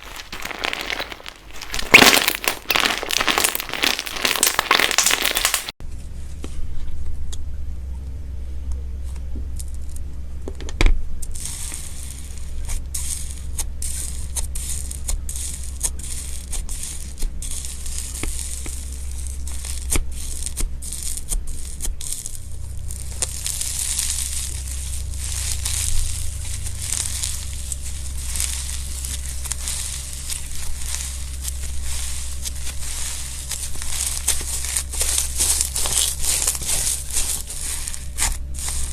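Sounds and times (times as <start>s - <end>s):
slime crackling and popping: 0.0s - 5.8s, 14.6s - 38.9s
steady low hum: 18.9s - 38.9s.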